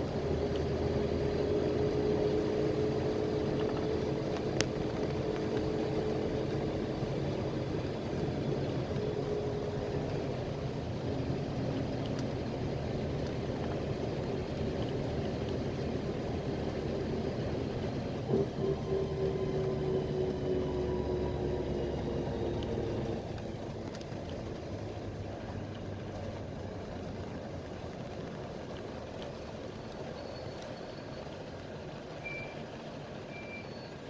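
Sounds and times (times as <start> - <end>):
bus engine and road noise: 0.0 - 34.0.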